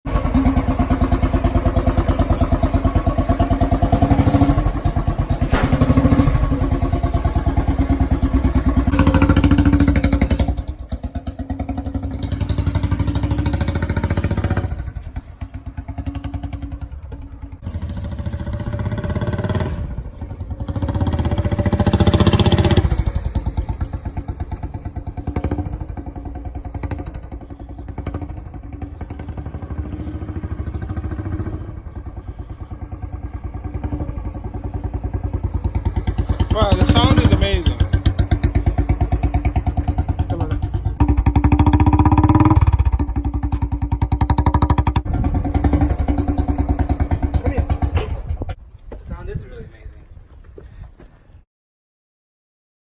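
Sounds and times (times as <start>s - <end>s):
single-cylinder motorcycle engine thumping: 0.1s - 17.6s, 20.1s - 49.1s.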